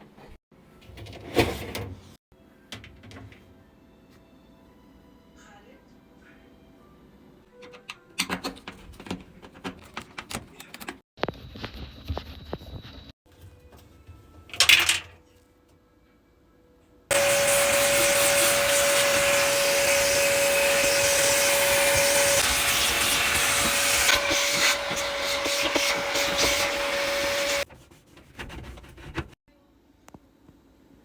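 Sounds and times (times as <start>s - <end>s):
vacuum cleaner running: 17.1s - 27.7s.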